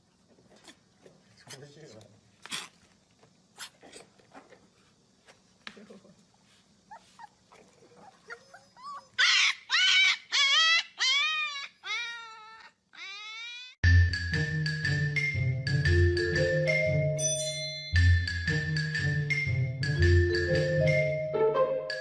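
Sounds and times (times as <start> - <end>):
puppy howling: 7.5 - 13.8
puppy squeaks: 8.1 - 13.8
music with mallet percussion: 13.8 - 22.0.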